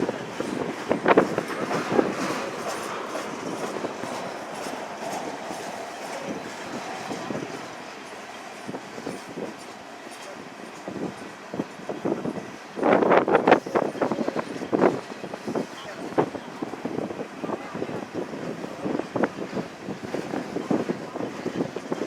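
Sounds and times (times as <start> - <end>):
train rolling on rails: 0.0 - 22.0
wheels clicking over rail joints: 0.0 - 22.0
wind buffeting microphone: 0.0 - 22.0.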